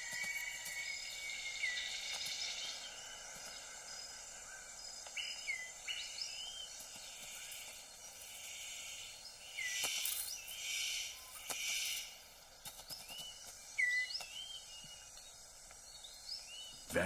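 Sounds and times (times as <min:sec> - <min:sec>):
insects droning: 0:00.0 - 0:17.0
bird whistles and chirps: 0:12.9 - 0:15.2.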